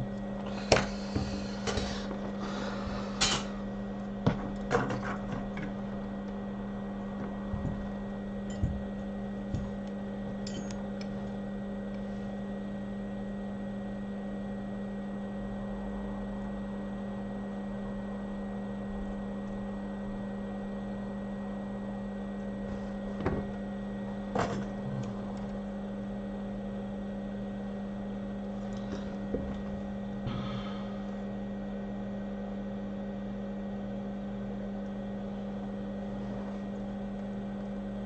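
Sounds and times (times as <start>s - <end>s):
electrical hum: 0.0s - 38.0s
small tools clicking and tapping: 10.4s - 11.1s.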